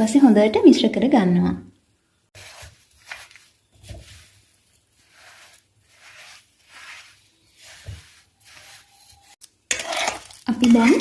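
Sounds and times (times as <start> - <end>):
spoon scraping wet mash: 2.3 - 11.0.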